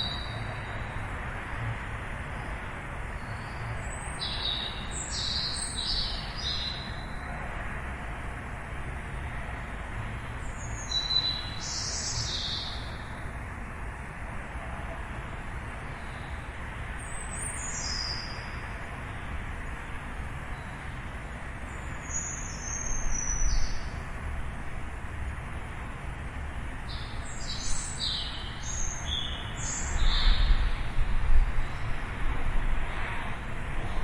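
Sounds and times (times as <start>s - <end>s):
distant city traffic hum: 0.0s - 34.0s
small birds chirping: 3.2s - 7.3s, 10.4s - 13.1s, 26.9s - 30.9s.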